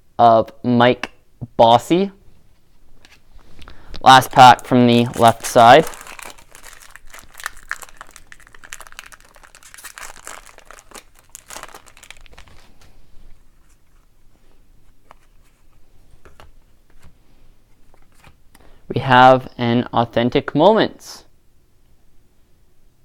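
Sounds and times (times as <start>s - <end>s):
wrapper crinkling and tearing: 4.3s - 13.0s
cards rustling and tapping: 4.9s - 13.0s, 14.8s - 17.2s.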